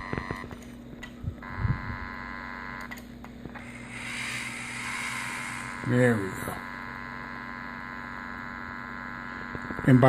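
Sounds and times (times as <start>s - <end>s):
toy train electrical hum: 0.0s - 10.0s
hiss: 3.6s - 5.8s.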